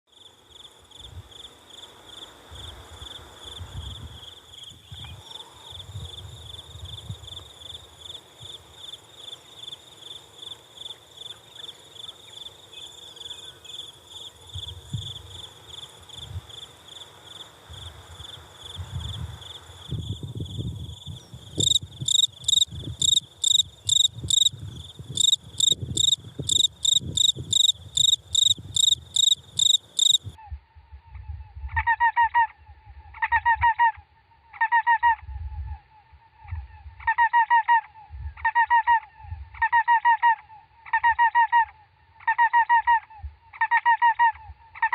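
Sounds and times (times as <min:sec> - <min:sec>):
cricket chirping: 0:00.1 - 0:30.4.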